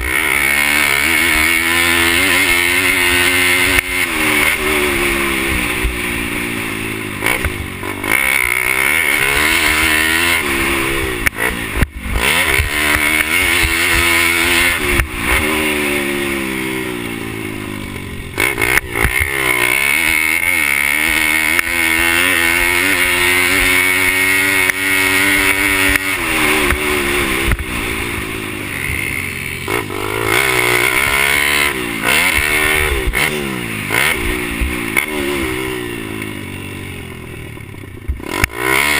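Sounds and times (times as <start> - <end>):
motorbike engine revving: 0.0 - 38.9.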